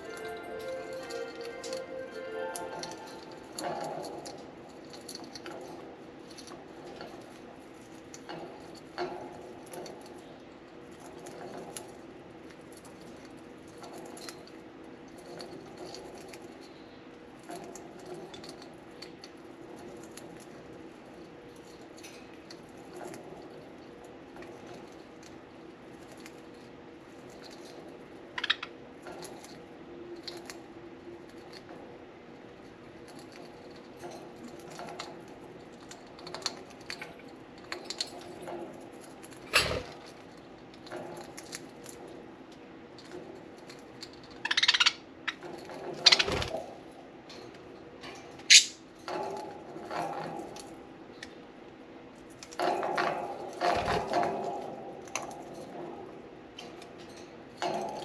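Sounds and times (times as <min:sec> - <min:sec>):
birds chewing wooden toy: 0:02.5 - 0:31.8, 0:32.4 - 0:46.8.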